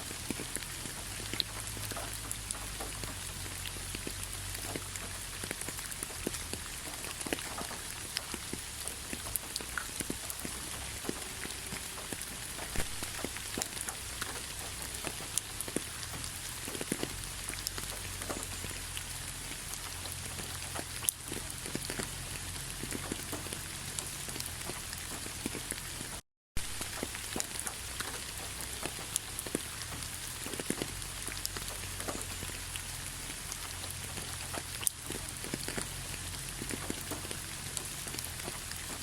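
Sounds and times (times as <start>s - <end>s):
light rain hiss: 0.0s - 39.0s
raindrop ticks: 0.0s - 39.0s.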